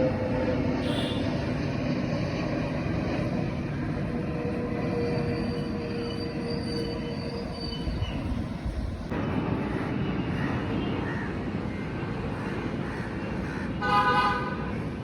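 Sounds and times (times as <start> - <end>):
thin steady whine: 0.0 - 10.2
vehicle rumbling: 0.0 - 13.8.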